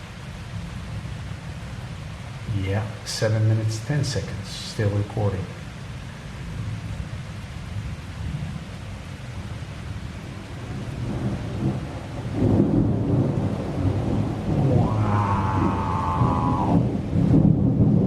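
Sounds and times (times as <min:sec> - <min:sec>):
steady rain: 0:00.0 - 0:18.0
thunder rumbling: 0:10.6 - 0:18.0.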